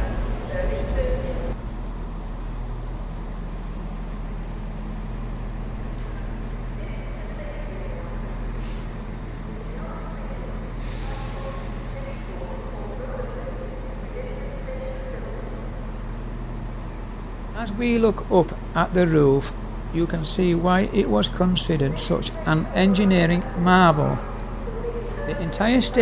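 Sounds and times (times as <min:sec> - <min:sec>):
diesel train engine idling: 0:00.0 - 0:26.0
faint voices: 0:06.1 - 0:26.0.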